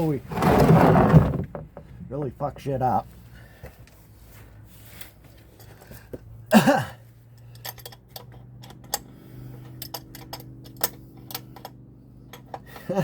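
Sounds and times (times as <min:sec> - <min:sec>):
metallic clicks of hand tools: 0:07.4 - 0:12.9.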